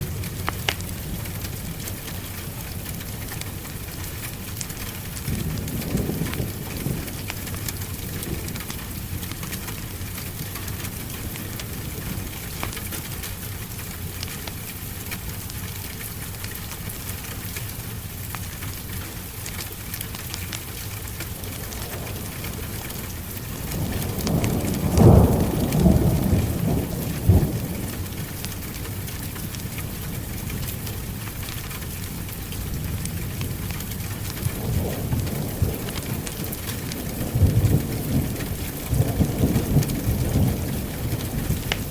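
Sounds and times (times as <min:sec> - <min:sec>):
thunder rumbling: 0:00.0 - 0:13.5, 0:20.6 - 0:41.9
heavy rain: 0:00.0 - 0:41.9.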